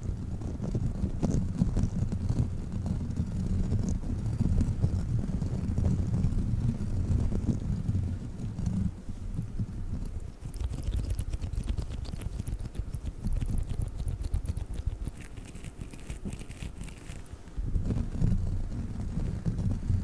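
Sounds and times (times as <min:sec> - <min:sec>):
sticky crackling clicks: 0:10.4 - 0:17.3.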